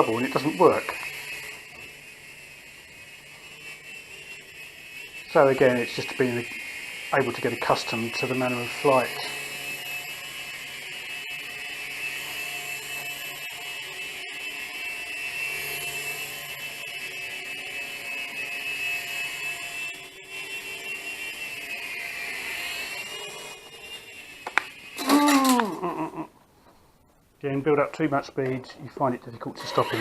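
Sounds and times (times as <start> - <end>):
toy helicopter motor whine: 0.0 - 26.3, 29.4 - 30.0
short sound falling in pitch: 25.0 - 26.3.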